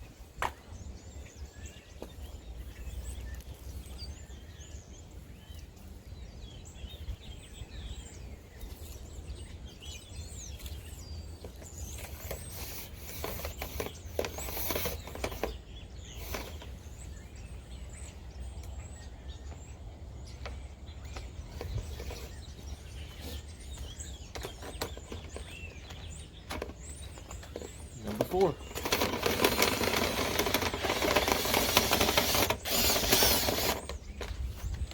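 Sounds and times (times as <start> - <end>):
small birds chirping: 0.0 - 34.9
rustling and scraping: 21.1 - 34.9.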